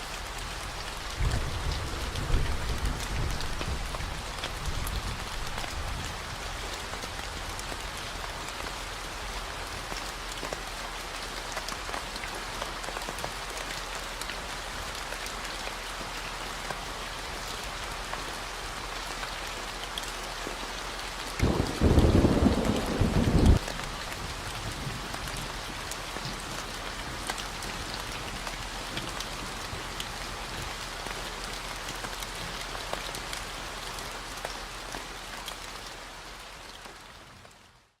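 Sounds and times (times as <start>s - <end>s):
steady rain falling: 0.0s - 38.0s
thunder rumbling: 21.4s - 25.0s.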